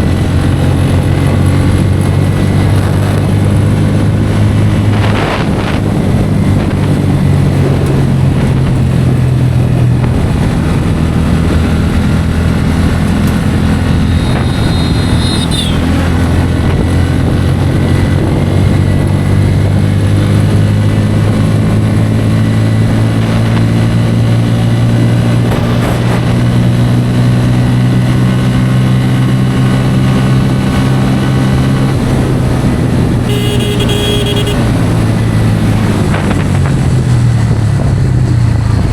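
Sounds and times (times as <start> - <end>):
motorcycle engine running: 0.0 - 38.9
wind noise on microphone: 0.0 - 38.9
vehicle horn: 13.9 - 16.2, 33.2 - 34.9.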